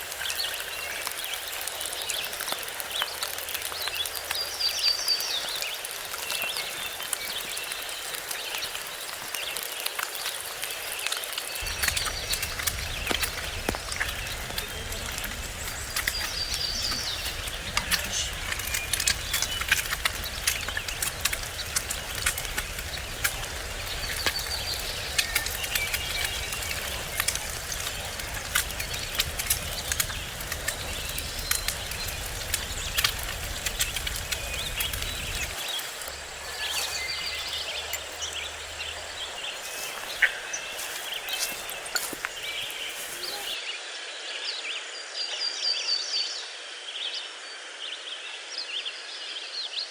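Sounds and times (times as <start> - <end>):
birds chirping: 0.0 - 43.6
background hiss: 10.2 - 43.6
low wind rumble on microphone: 11.6 - 43.6.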